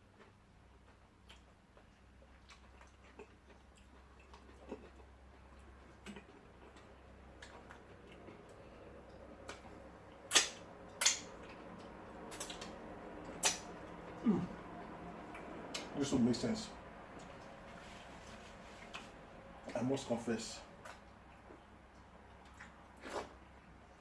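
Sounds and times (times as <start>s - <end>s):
wet smacks of eating by hand: 0.2s - 14.6s, 15.3s - 16.0s, 20.8s - 23.4s.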